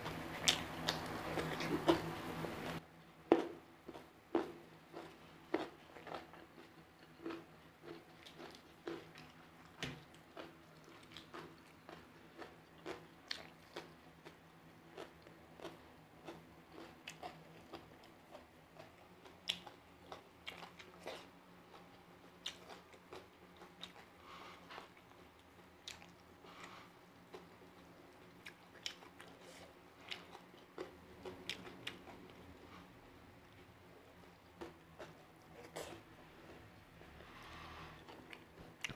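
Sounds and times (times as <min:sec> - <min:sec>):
person chewing food: 0:00.0 - 0:33.0, 0:34.0 - 0:38.9.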